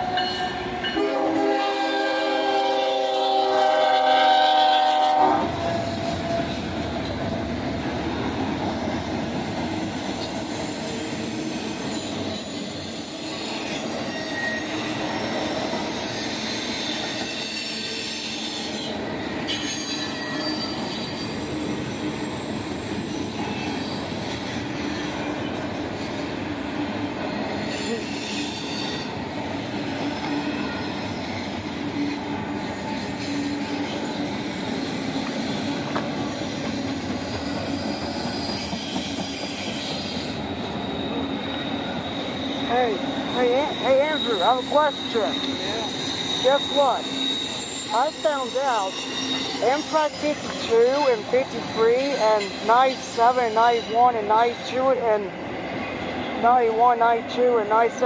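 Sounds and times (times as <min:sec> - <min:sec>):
train horn chord: 0:00.0 - 0:06.6
train rolling past: 0:00.0 - 0:58.0
thin wheel squeal: 0:10.9 - 0:18.9, 0:19.5 - 0:21.4, 0:37.8 - 0:54.3
wheels clickety-clack: 0:35.0 - 0:40.2.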